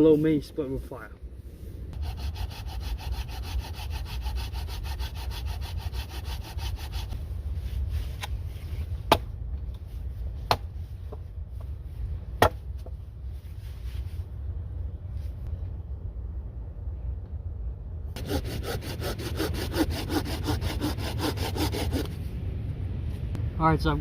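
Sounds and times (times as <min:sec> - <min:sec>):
low wind rumble: 0:00.0 - 0:24.0
hand saw cutting log: 0:02.0 - 0:07.2, 0:18.2 - 0:22.2.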